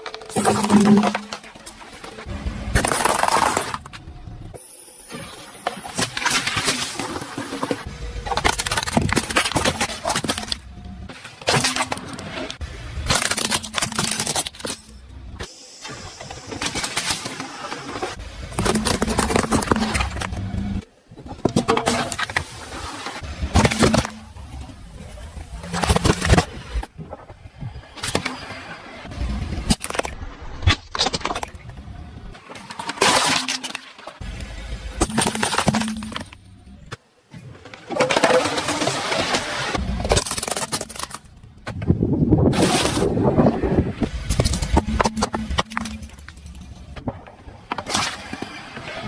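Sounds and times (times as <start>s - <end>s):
tyre crushing brittle objects: 0.0s - 4.0s, 5.9s - 10.7s, 13.0s - 15.1s, 18.5s - 20.5s, 23.5s - 24.4s, 35.0s - 36.4s, 37.9s - 41.4s, 44.0s - 47.0s
objects crunching under car tyres: 0.0s - 4.6s, 5.3s - 15.5s, 16.6s - 26.9s, 29.0s - 41.8s, 42.4s - 49.0s.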